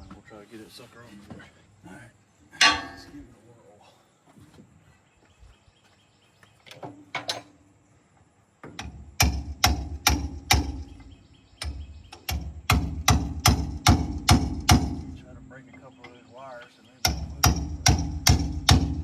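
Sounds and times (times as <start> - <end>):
hammer striking chisel on metal: 17.0 - 19.0.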